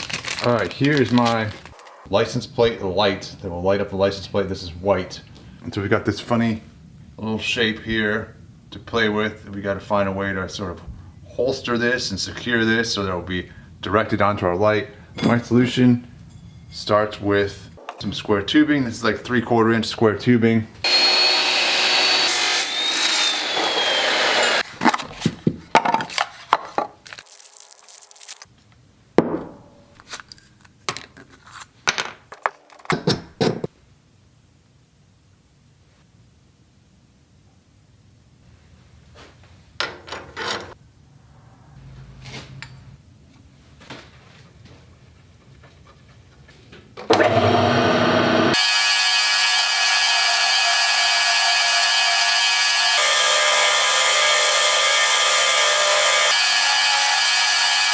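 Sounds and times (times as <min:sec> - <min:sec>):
power tool whining: 0:20.8 - 0:24.6, 0:47.1 - 0:57.9.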